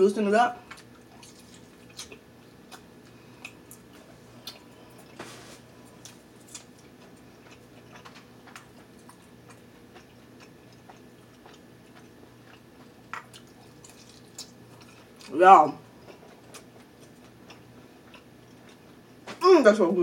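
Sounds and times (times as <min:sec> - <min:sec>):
faint low hum: 0:00.0 - 0:20.0
soft chewing: 0:00.6 - 0:19.4
wet clicks and lip smacks: 0:00.8 - 0:04.7, 0:07.8 - 0:14.9.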